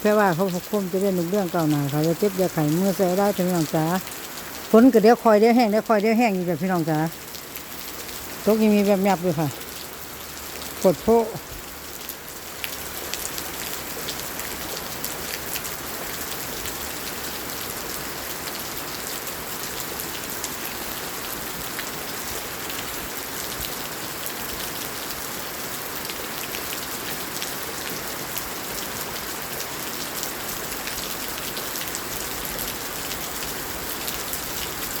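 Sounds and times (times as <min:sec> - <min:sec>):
raindrops ticking: 0:00.0 - 0:19.0
rain falling: 0:00.0 - 0:35.0.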